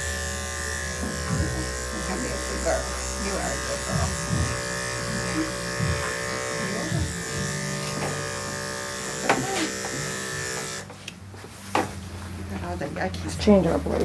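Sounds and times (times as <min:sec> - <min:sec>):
electric clippers buzzing: 0:00.0 - 0:11.0.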